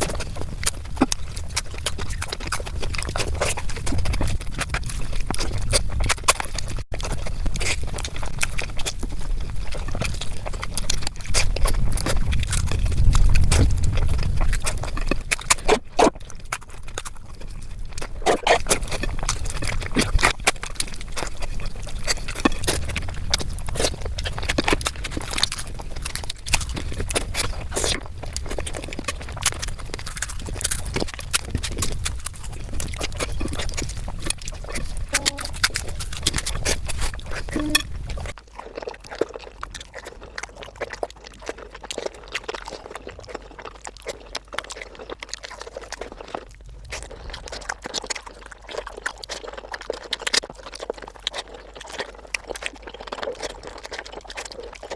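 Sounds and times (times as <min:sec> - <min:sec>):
wet chewing and lip smacking: 0:00.0 - 0:54.9.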